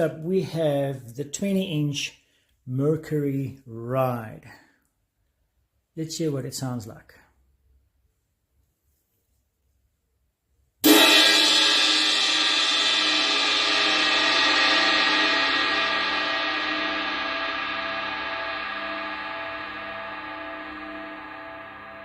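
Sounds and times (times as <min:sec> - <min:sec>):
ride cymbal struck and ringing: 0:10.8 - 0:22.0.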